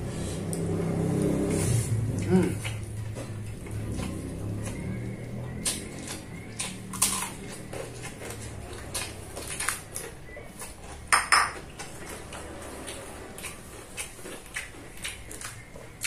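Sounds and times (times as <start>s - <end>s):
wet chewing and lip smacks: 2.1s - 16.0s.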